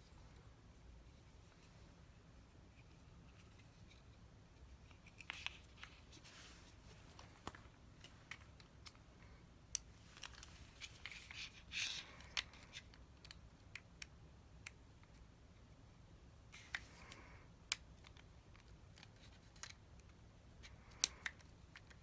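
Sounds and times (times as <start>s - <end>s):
small parts and tools clicking: 16.6s - 22.0s.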